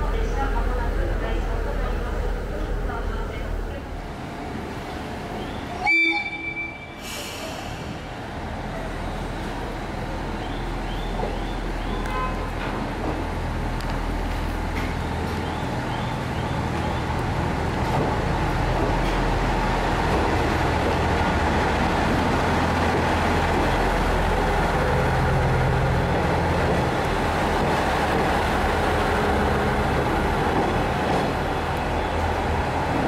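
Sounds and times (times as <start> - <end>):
train wheels on rails: 7.0 - 33.0.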